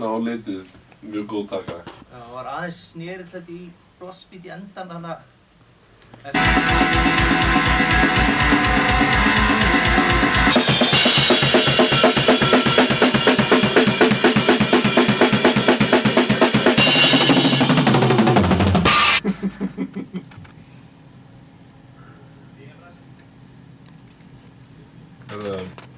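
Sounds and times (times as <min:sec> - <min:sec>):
fast drumming with cymbals: 0:06.4 - 0:19.2
heavy rock band playing: 0:06.4 - 0:19.2.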